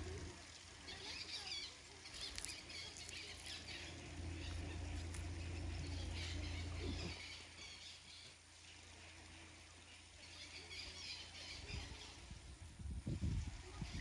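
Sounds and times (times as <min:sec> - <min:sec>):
steady low rumble: 0:00.0 - 0:00.8, 0:02.2 - 0:07.2
small birds chirping: 0:00.0 - 0:14.0.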